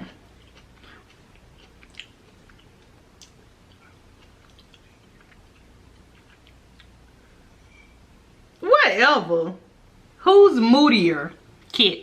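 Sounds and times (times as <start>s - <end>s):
person chewing shellfish: 0.1s - 7.2s
wet mouth clicks and smacks: 1.4s - 7.0s.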